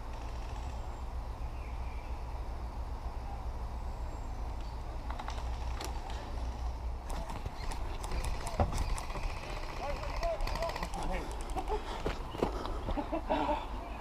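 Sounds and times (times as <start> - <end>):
airsoft guns firing clicks: 7.0 - 11.7.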